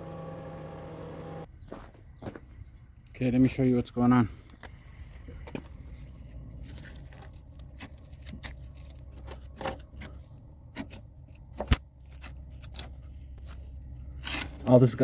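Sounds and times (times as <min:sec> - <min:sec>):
steady low hum: 0:00.0 - 0:01.5.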